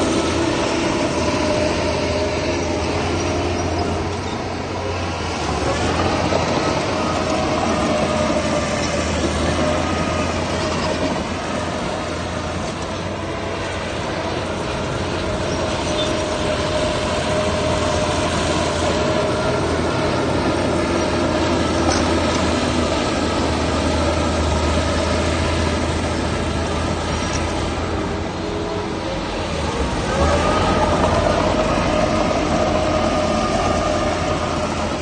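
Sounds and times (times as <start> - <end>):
diesel engine drone: 0.0 - 35.0
steady machine whine: 0.0 - 35.0.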